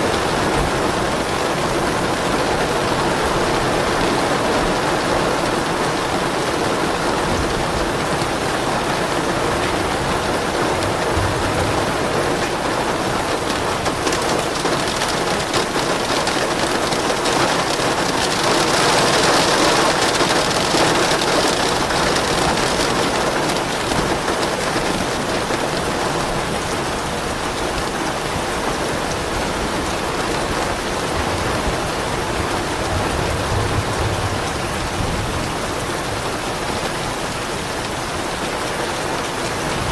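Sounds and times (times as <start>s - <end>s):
steady rain falling: 0.0s - 39.9s
low thunder rumbling: 5.9s - 15.8s, 30.5s - 36.8s.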